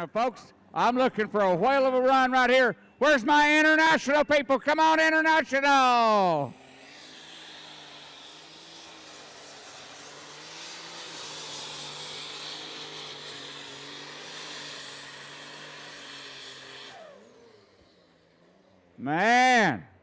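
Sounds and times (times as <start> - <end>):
tractor engine running under load: 6.6 - 19.0.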